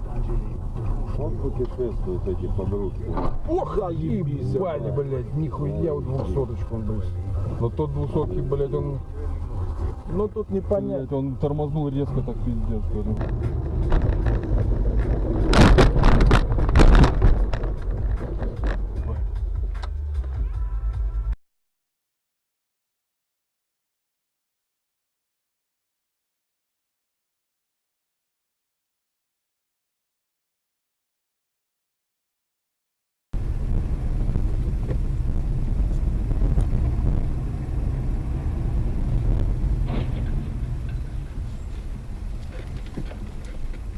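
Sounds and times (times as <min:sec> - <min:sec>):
car road rumble: 0:00.0 - 0:21.4, 0:33.4 - 0:43.9.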